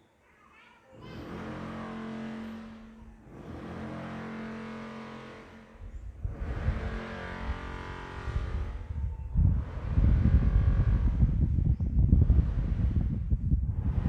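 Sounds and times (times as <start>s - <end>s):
vehicle engine passing: 1.0s - 11.5s
wind buffeting microphone: 5.6s - 14.0s.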